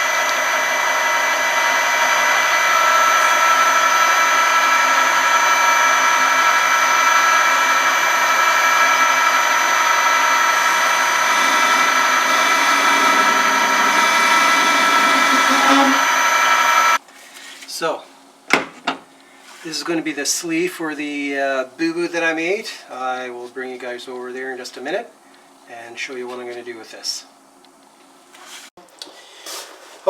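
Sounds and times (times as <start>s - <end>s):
power tool whining: 0.0s - 17.0s
lower rough noise: 10.0s - 17.0s.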